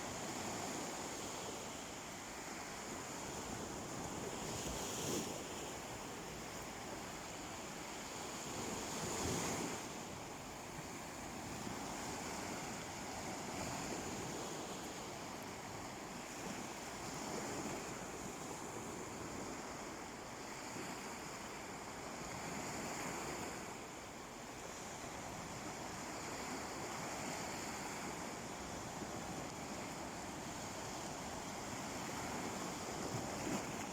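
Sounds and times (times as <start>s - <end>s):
sea waves washing up a beach: 0.0s - 33.9s.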